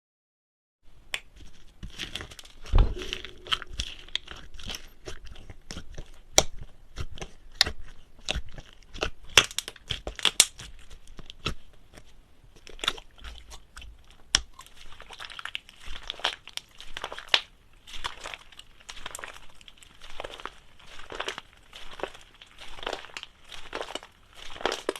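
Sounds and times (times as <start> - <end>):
heavy thud: 2.6 - 5.2.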